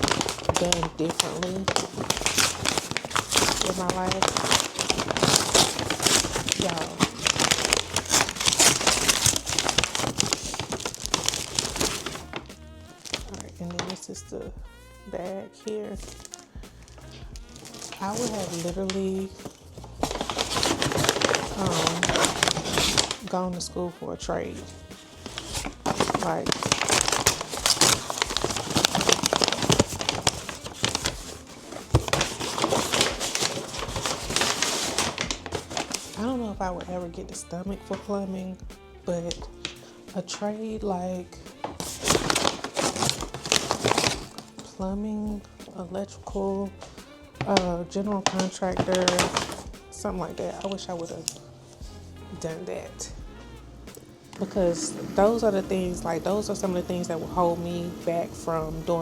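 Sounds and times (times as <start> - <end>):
plastic packaging crinkling: 0.0 - 14.1, 15.6 - 23.4, 24.6 - 37.0, 39.3 - 40.4, 41.2 - 44.8, 46.7 - 51.8.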